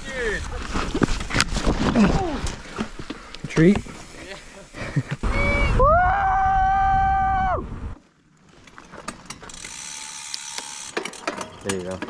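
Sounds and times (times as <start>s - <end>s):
bike disc brake squealing: 5.2s - 5.8s.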